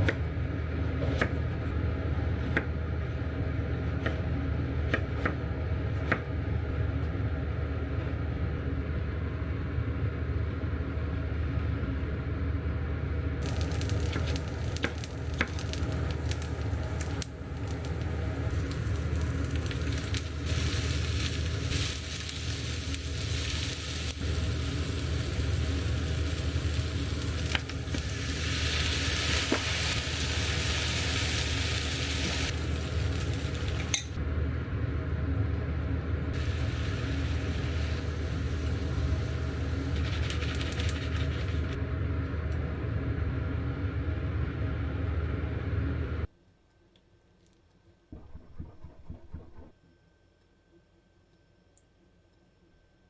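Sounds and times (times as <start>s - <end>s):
low hum: 0.0s - 47.2s, 47.9s - 53.0s
food sizzling in a frying pan: 13.4s - 34.2s, 36.4s - 41.8s.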